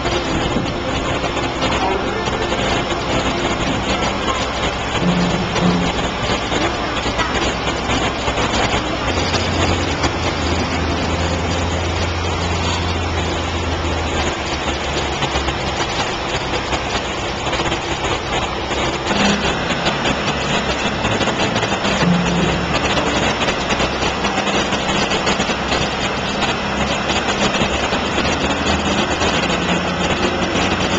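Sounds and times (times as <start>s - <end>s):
boat engine running: 0.0s - 30.9s.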